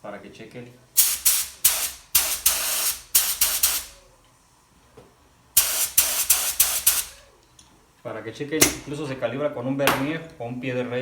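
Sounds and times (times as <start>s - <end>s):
paint spray gun hissing bursts: 1.0s - 4.0s, 5.6s - 7.2s.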